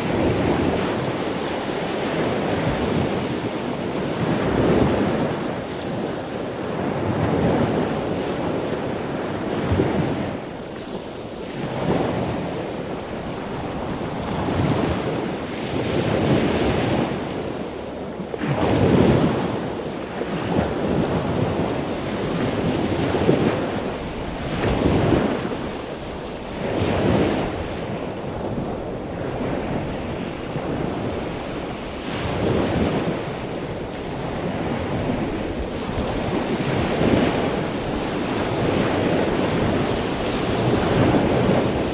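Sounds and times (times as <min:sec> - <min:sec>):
rushing splashing sea water: 0:00.0 - 0:41.9
wind buffeting microphone: 0:20.5 - 0:41.9.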